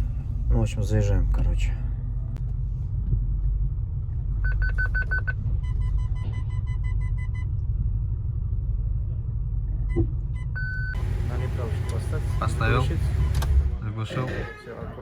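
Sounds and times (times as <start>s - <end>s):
car engine low rumble: 0.0s - 15.0s
slower lower beeps: 4.4s - 7.6s.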